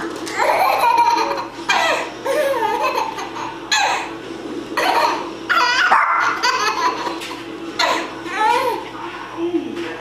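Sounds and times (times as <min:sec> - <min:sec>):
small child laughing: 0:00.3 - 0:04.1, 0:04.8 - 0:08.8.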